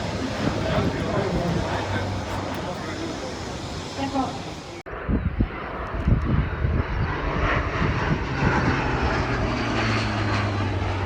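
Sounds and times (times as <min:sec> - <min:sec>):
aircraft engine drone: 0:00.0 - 0:11.0.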